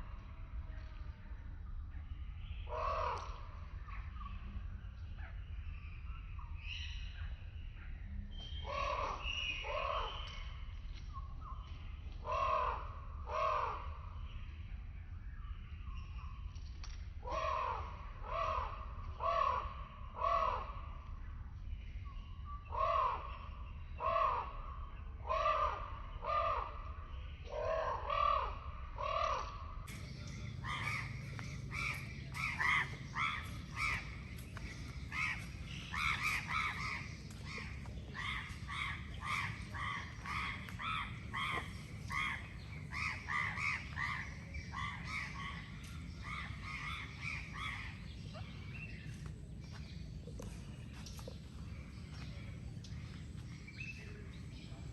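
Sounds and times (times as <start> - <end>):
birds calling: 22.2 - 54.9
steady low hum: 28.5 - 54.9.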